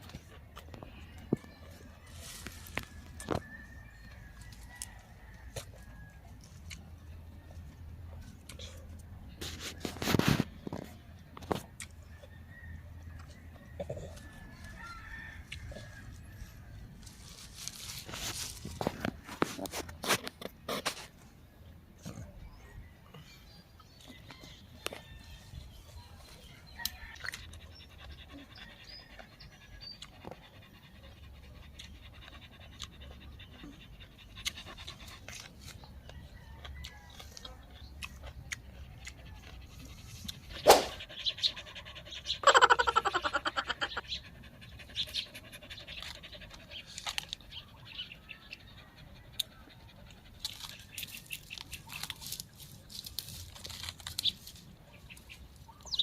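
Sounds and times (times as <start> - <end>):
wet chewing and smacking: 2.5 - 9.2, 13.0 - 16.4, 26.2 - 30.9, 31.6 - 42.1, 44.8 - 48.7, 49.3 - 56.0.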